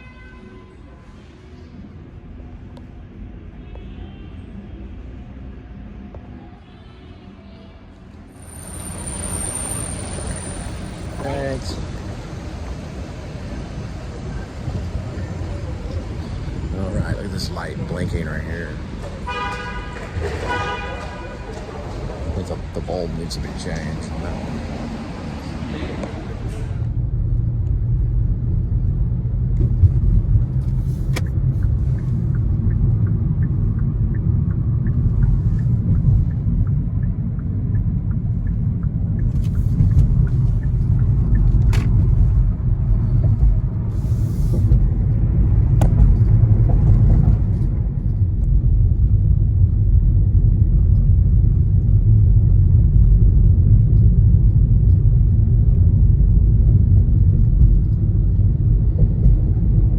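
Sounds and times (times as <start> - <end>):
low rumble: 23.8 - 59.9.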